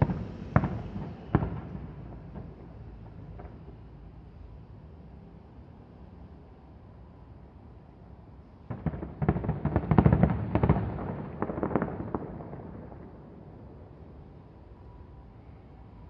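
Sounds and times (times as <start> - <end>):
fireworks bangs and crackles: 0.0 - 4.1, 8.6 - 14.3.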